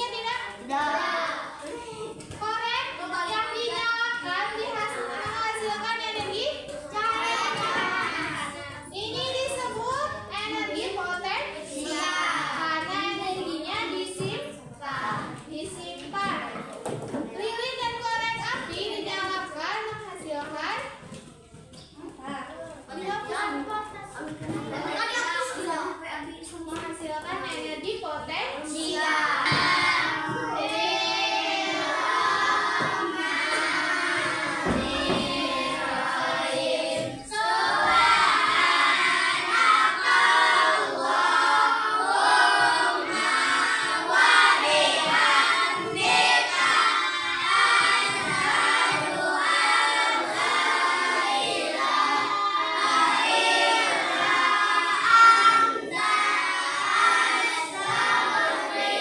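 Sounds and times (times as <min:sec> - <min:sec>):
children singing in chorus: 0:06.9 - 0:09.1, 0:11.5 - 0:14.0, 0:28.7 - 0:59.0.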